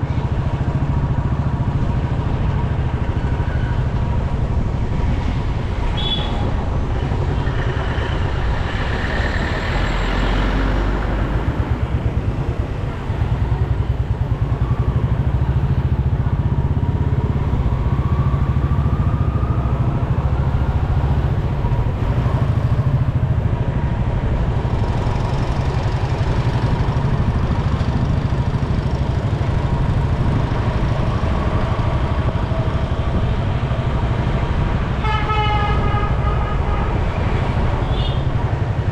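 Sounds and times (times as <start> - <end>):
street traffic: 0.0 - 38.9.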